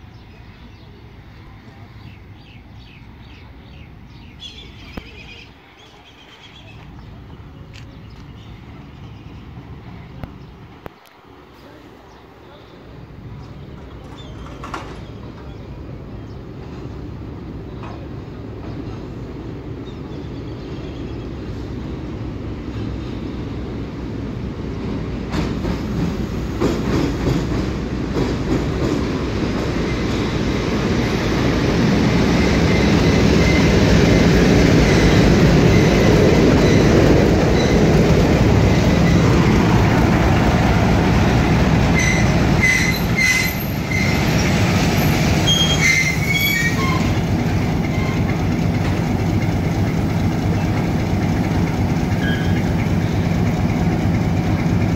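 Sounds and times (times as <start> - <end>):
train rumbling on rails: 0.0 - 54.9
brake squeals: 42.0 - 48.4, 52.1 - 52.9.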